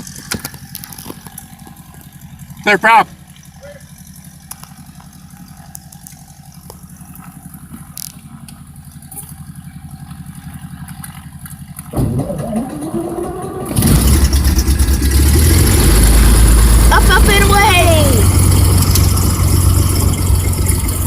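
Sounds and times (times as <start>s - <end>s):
piston engine starting: 11.8s - 17.5s.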